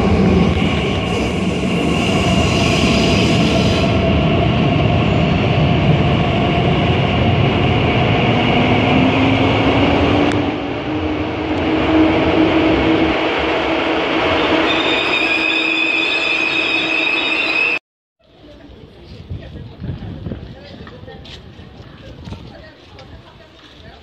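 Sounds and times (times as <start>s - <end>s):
train rumbling on track: 0.0s - 17.8s.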